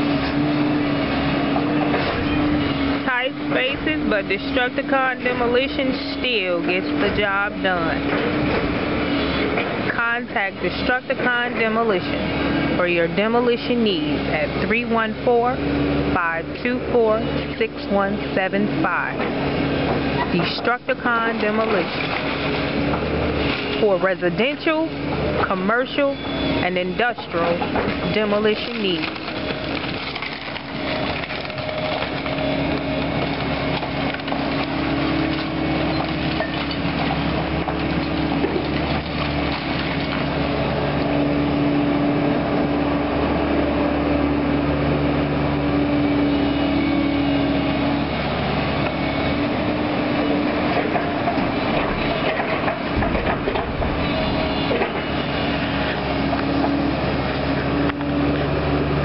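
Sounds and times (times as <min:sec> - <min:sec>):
diesel excavator engine running: 0:00.0 - 0:59.0
wood cracking and splintering: 0:21.3 - 0:23.8, 0:27.2 - 0:41.0, 0:50.7 - 0:58.1.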